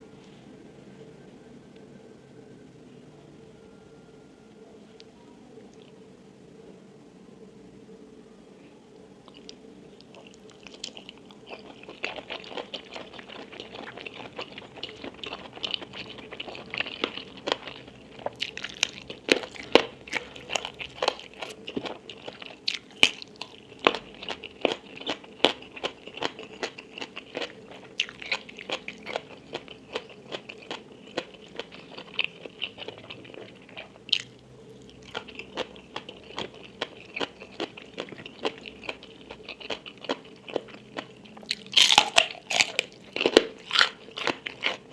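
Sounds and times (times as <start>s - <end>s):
person chewing crunchy food: 9.3s - 44.9s.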